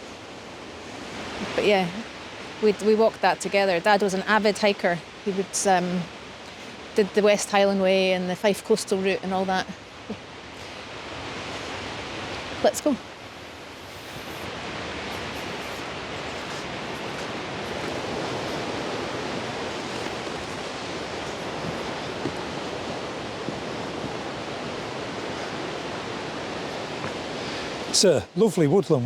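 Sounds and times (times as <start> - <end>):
wind in trees: 0.0 - 29.0
waterfall roaring: 11.2 - 29.0.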